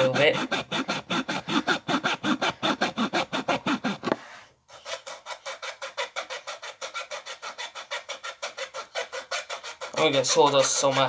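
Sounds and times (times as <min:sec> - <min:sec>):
hacksaw cutting through wood: 0:00.0 - 0:11.0.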